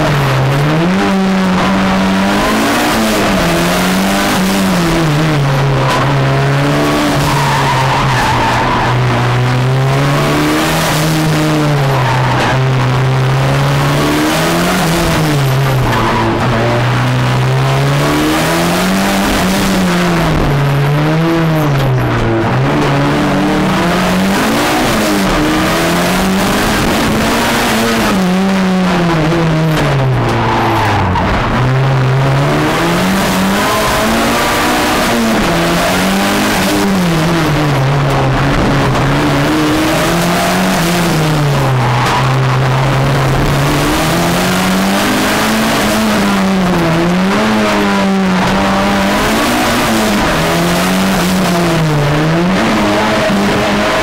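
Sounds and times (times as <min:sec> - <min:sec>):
car engine revving hard: 0:00.0 - 0:54.0.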